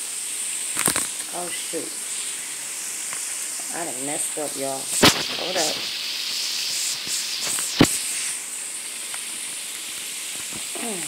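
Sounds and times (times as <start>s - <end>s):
oil sizzling in a skillet: 0.0s - 11.0s
sharp pop of frying oil: 0.7s - 1.2s, 4.9s - 5.9s, 6.9s - 8.0s.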